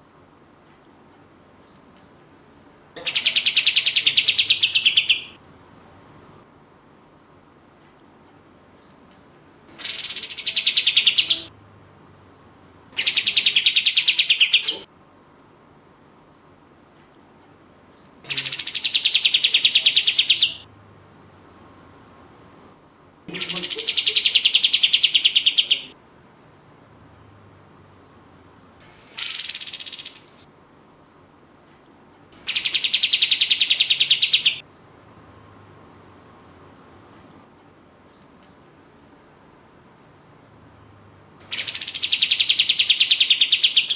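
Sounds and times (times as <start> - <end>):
songbird buzzy trills: 9.8 - 11.5, 28.9 - 30.4, 32.4 - 34.6, 41.4 - 43.9
songbird rattling trills: 29.2 - 30.4, 41.5 - 43.9.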